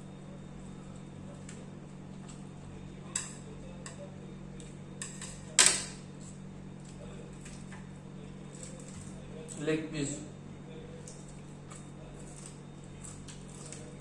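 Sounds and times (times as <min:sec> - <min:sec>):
cutlery and dishes clicking: 0:05.0 - 0:06.0.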